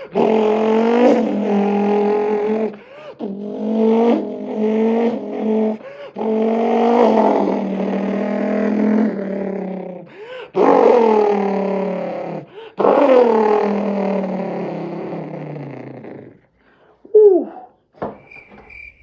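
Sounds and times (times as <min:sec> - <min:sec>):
person imitating car engine revving: 0:00.0 - 0:10.1, 0:17.1 - 0:17.7.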